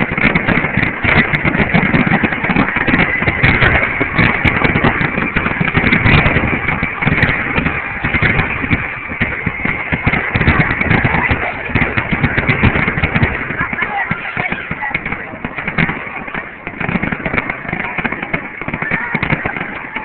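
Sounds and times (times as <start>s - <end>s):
outdoor noise: 0.0s - 20.0s.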